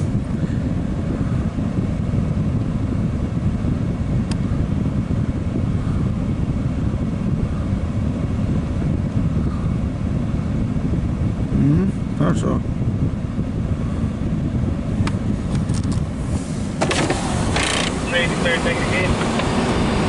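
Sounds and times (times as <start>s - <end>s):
diesel locomotive idling: 16.2s - 20.0s.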